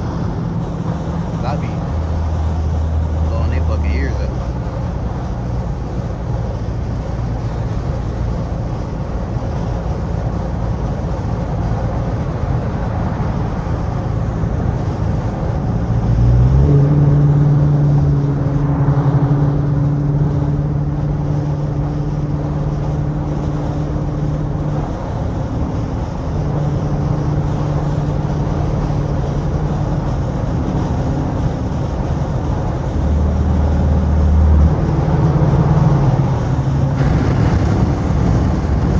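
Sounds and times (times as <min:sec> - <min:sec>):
car exhaust droning: 0:00.0 - 0:38.9.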